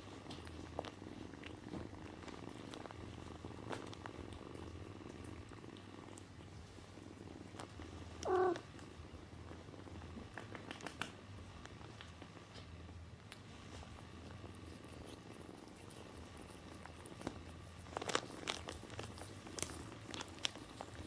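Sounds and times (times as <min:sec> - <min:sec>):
cat purring: 0:00.0 - 0:21.0
cat meowing: 0:08.2 - 0:08.6.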